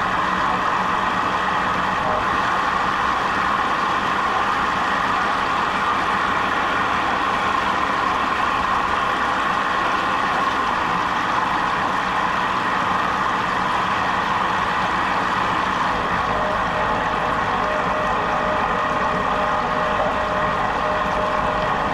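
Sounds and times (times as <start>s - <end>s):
jet boat motor droning: 0.0s - 21.9s.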